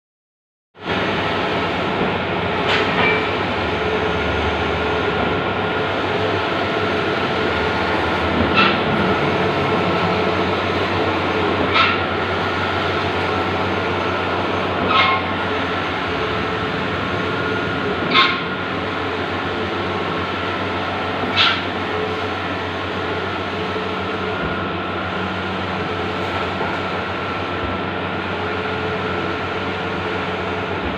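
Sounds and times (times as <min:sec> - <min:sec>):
printer whirring and humming: 0:00.8 - 0:30.9
printer clack: 0:08.0 - 0:13.3, 0:17.8 - 0:18.6.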